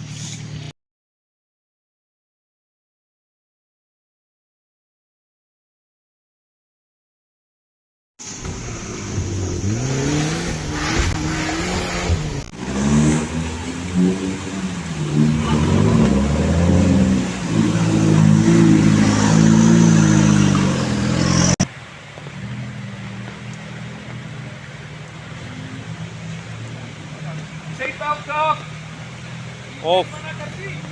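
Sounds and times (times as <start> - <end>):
off-road vehicle engine revving: 8.2 - 30.9.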